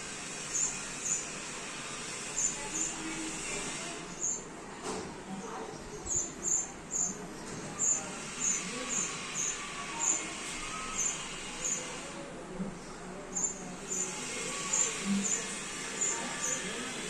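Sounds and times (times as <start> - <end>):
sparrow chirping: 0.5 - 1.4, 2.3 - 3.0, 4.1 - 4.5, 5.9 - 7.2, 7.8 - 10.2, 10.8 - 12.0, 13.3 - 16.7.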